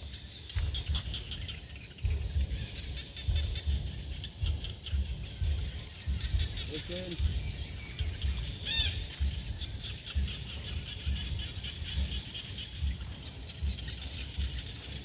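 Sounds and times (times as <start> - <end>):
birds chirping and calling: 0.0 - 15.0
low rumbles on microphone: 0.0 - 15.0.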